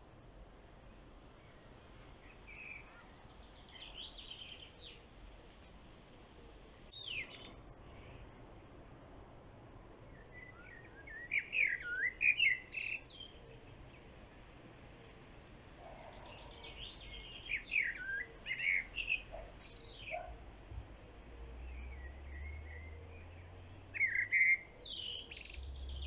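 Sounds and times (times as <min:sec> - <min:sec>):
faint steady hiss: 0:00.0 - 0:26.0
songbird warbling: 0:07.0 - 0:08.2, 0:10.3 - 0:13.8, 0:15.8 - 0:20.4, 0:21.6 - 0:26.0.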